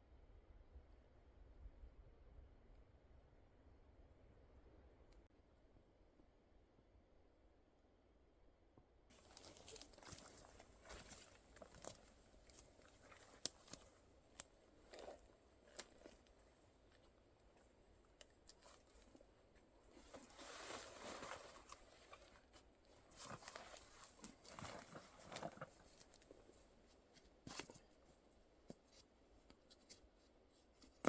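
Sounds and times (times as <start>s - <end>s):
footsteps on dry forest litter: 9.1s - 17.2s.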